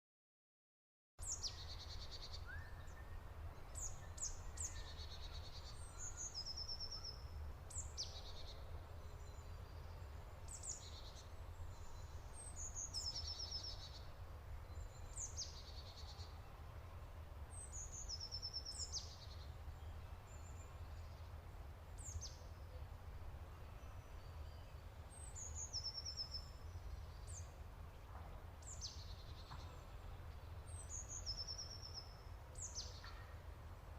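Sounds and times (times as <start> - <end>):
bird singing trills: 1.2 - 16.4, 23.7 - 27.6, 28.6 - 33.4.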